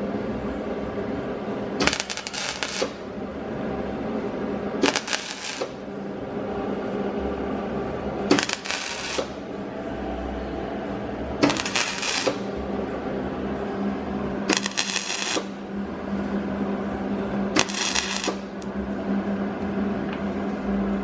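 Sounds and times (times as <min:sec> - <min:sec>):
steady hum: 0:00.0 - 0:21.0
welder bursts: 0:01.8 - 0:03.1, 0:04.8 - 0:05.9, 0:08.3 - 0:09.4, 0:11.4 - 0:12.6, 0:14.5 - 0:15.6, 0:17.6 - 0:18.7.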